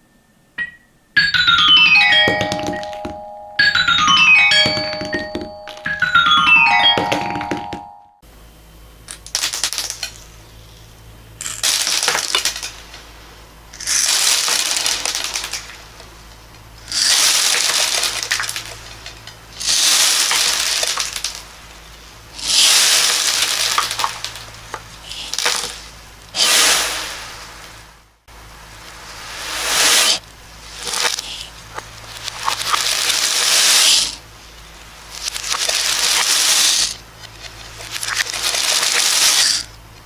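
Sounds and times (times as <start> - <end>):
small hard beads pouring and clattering: 9.3 - 10.2, 11.4 - 13.0, 13.8 - 16.0, 16.8 - 21.6, 22.4 - 27.4, 29.0 - 34.2, 35.0 - 39.7.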